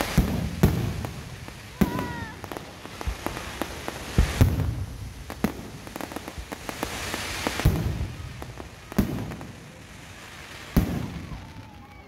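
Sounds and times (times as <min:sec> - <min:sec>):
crackling hiss of fireworks: 0:00.0 - 0:12.0
fireworks bangs: 0:00.0 - 0:12.0.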